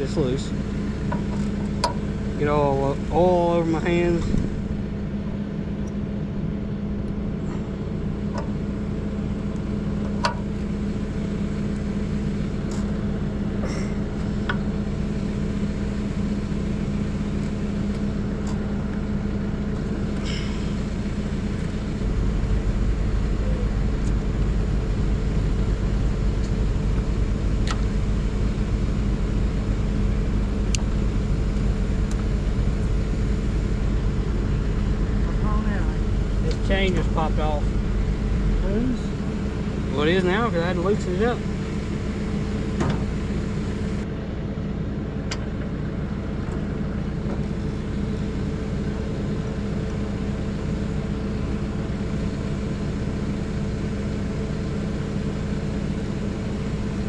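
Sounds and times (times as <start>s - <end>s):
tractor engine idling: 0.0s - 57.0s.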